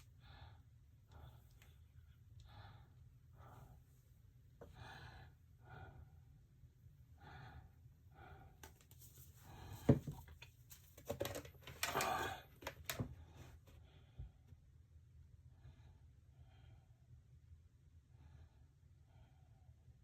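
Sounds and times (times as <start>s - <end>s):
person breathing softly: 0.0s - 6.4s, 7.1s - 10.3s.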